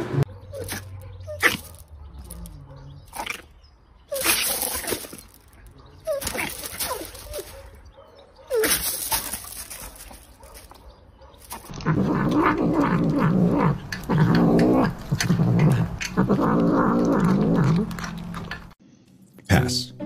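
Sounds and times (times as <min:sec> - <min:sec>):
puppy yelping: 0:00.4 - 0:03.4, 0:05.8 - 0:09.3
paws scuffing gravel: 0:00.5 - 0:02.6, 0:04.1 - 0:11.8.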